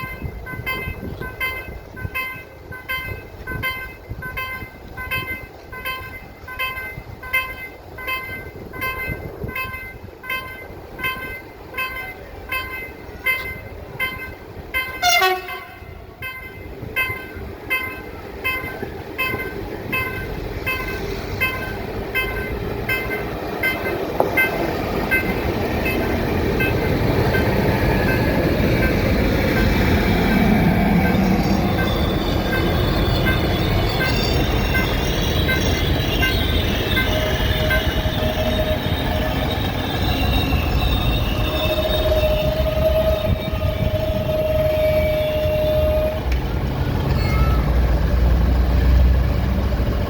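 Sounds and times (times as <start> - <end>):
warning bell chiming: 0.0 - 42.6, 47.1 - 48.0
diesel railcar rumble: 0.0 - 50.0.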